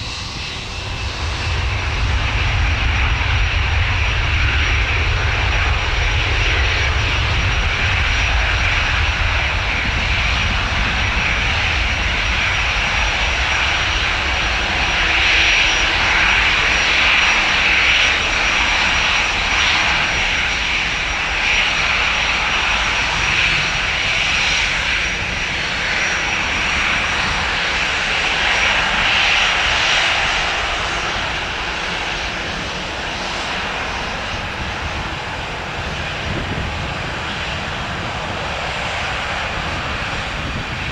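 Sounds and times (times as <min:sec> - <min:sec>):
jet engines whine and rumble: 0:00.0 - 0:40.9.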